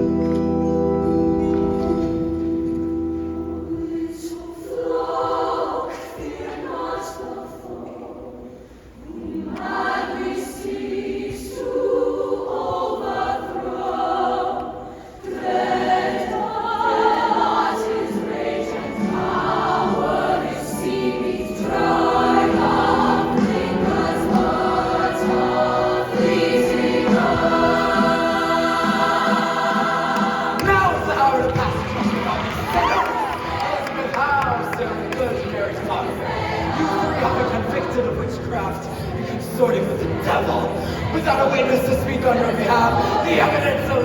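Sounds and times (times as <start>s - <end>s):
choir singing in harmony: 0.0s - 44.0s.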